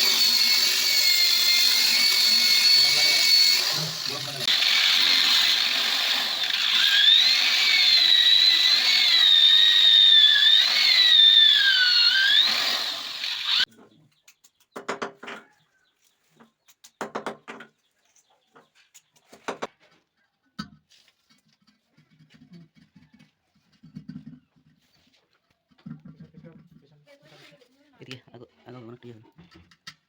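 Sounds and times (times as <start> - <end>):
electric drill whining: 0.0 - 13.7.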